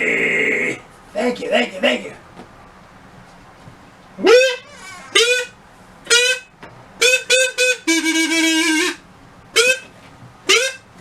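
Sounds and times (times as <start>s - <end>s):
reedy goose-like honks: 4.2s - 9.9s, 10.5s - 10.9s.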